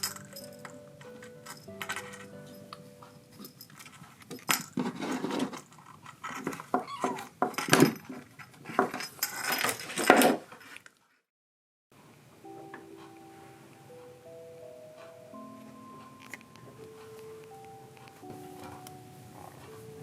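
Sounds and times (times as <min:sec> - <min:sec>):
clattering and rustling: 0:00.0 - 0:11.0
short knocks and scrapes: 0:04.7 - 0:07.2.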